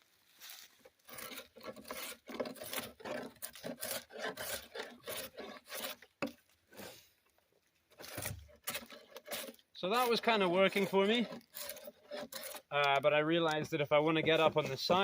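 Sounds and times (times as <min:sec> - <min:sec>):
drawknife scraping wood: 0:01.0 - 0:07.1, 0:07.9 - 0:15.0.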